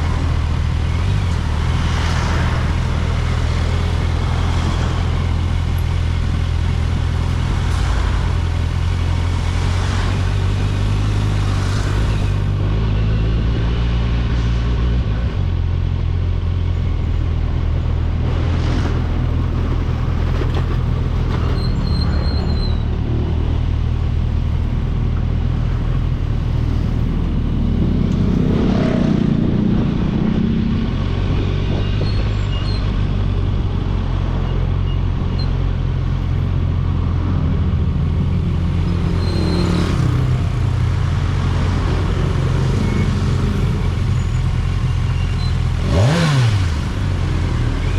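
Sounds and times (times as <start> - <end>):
road and traffic noise: 0.0 - 47.9
motorcycle engine running: 33.0 - 47.9.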